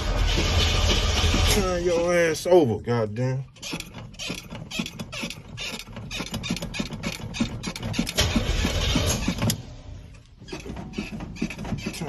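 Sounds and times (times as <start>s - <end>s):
truck engine cranking: 3.5s - 12.0s.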